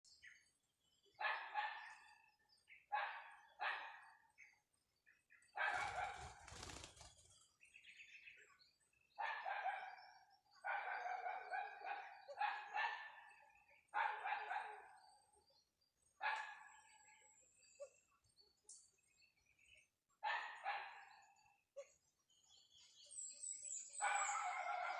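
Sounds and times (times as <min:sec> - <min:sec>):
dog barking: 0:01.2 - 0:02.1, 0:02.9 - 0:04.2, 0:05.6 - 0:06.4, 0:09.2 - 0:15.0, 0:16.2 - 0:16.8, 0:20.2 - 0:21.4, 0:24.0 - 0:24.9
rustling or flapping noise: 0:05.7 - 0:07.4.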